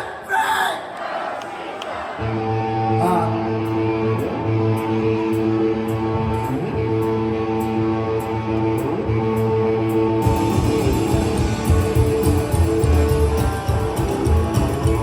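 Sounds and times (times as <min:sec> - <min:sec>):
electric guitar chords: 0:02.2 - 0:15.0
live rock band playing: 0:09.9 - 0:15.0
ticking drum beat: 0:10.2 - 0:15.0.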